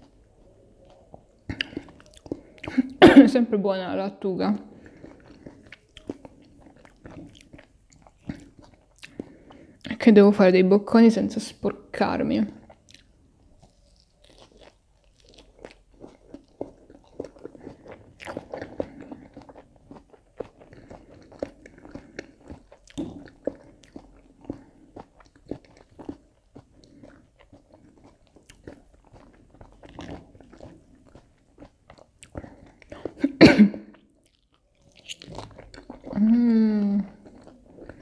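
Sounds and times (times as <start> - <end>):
chewing crisp lettuce: 0.0 - 3.0, 4.5 - 10.0, 12.5 - 38.0
bite into breaded snack: 12.6 - 33.2, 33.9 - 38.0.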